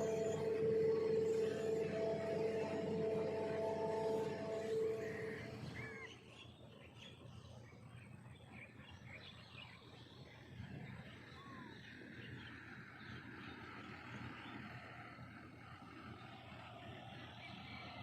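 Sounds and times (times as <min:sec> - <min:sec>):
steady humming tone: 0:00.0 - 0:09.7.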